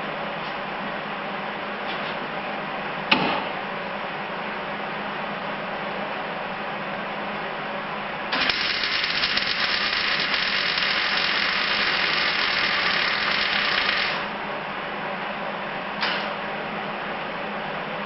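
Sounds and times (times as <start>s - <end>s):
welding arc crackling: 8.4s - 14.3s.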